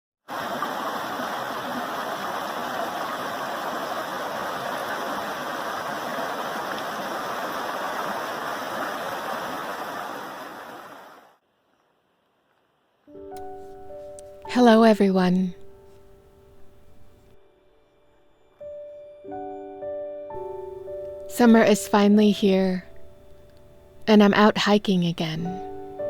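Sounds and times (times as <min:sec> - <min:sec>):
water rushing in a stream: 0:00.3 - 0:11.4.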